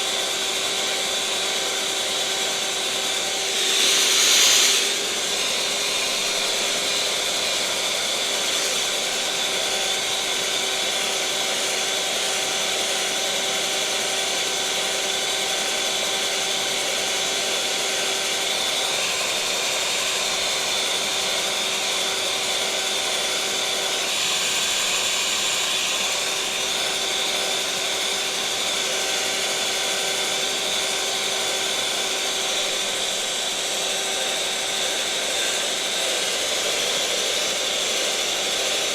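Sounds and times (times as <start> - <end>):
electric mixer motor whine: 0.0 - 38.9.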